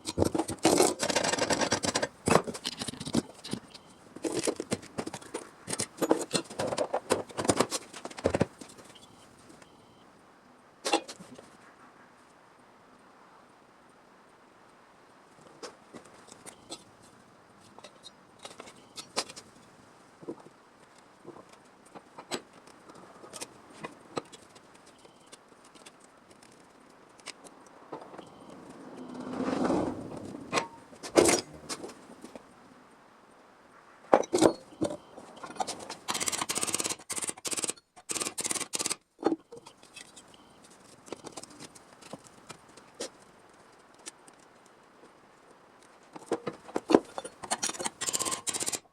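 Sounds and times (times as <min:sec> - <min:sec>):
scraping: 0:28.0 - 0:32.4.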